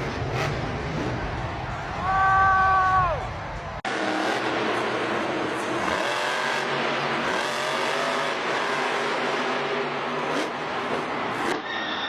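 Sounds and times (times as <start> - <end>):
truck engine revving: 0.0 - 1.8, 3.7 - 11.6.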